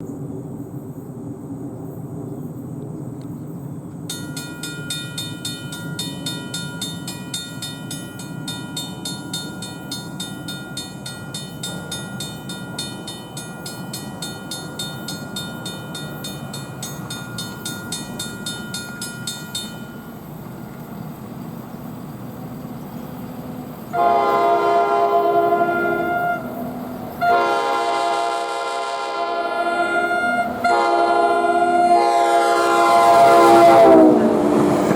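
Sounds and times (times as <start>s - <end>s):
crossing warning bell ringing: 4.1s - 20.6s, 24.0s - 34.9s
locomotive air horn: 23.9s - 26.6s, 27.2s - 34.5s.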